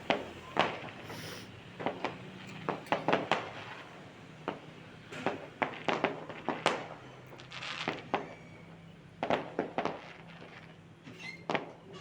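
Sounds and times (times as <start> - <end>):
fireworks bangs and cracks: 0.0 - 8.4, 9.1 - 11.9
short rushing hiss: 1.1 - 1.5.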